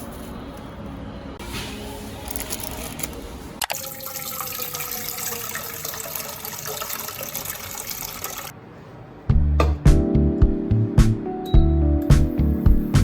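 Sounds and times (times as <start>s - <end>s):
tap water running into sink: 3.6s - 8.5s.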